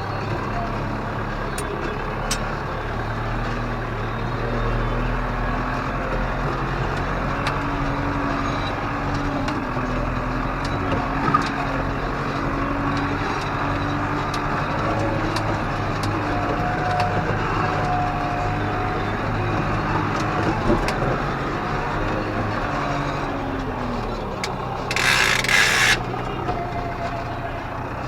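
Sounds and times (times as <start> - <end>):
tractor engine running under load: 0.0 - 28.0
sharp clicks and knocks: 24.9 - 26.0.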